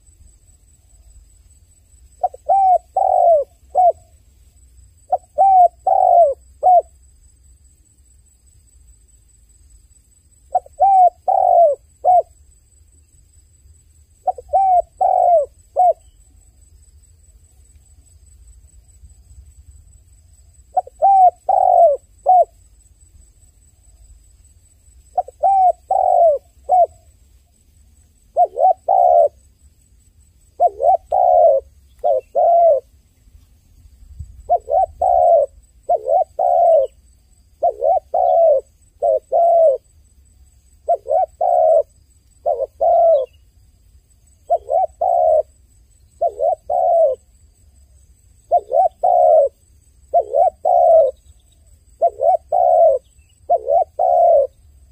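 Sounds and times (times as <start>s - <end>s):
dove cooing: 2.2s - 4.2s, 5.1s - 7.0s, 10.5s - 12.3s, 14.2s - 16.2s, 20.7s - 22.6s, 25.1s - 27.2s, 28.3s - 29.4s, 30.6s - 32.9s, 34.4s - 39.9s, 40.8s - 43.4s, 44.5s - 45.6s, 46.2s - 47.3s, 48.5s - 54.6s.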